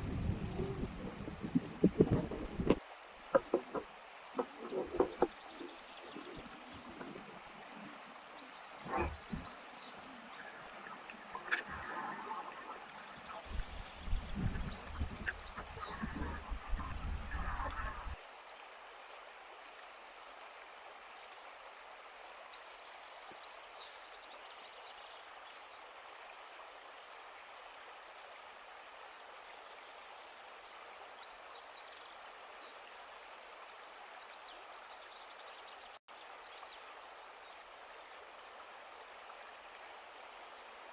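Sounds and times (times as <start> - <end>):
small birds chirping: 0.0 - 18.2
steady rushing noise: 8.8 - 18.2.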